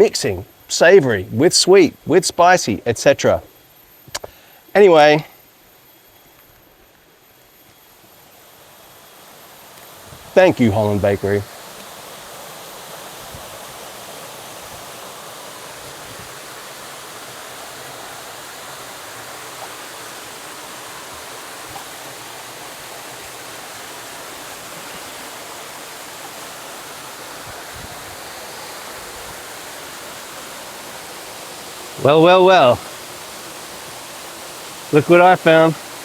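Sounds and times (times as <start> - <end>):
small waterfall rushing: 7.9 - 36.0.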